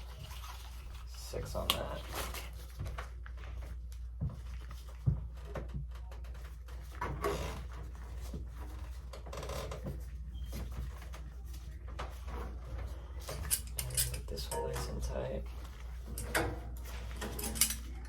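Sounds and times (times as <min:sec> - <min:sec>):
soft scraping and handling: 0:06.0 - 0:18.0.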